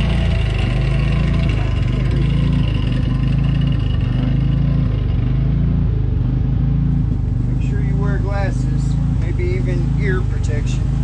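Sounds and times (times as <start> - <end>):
motor humming: 0.0 - 6.1.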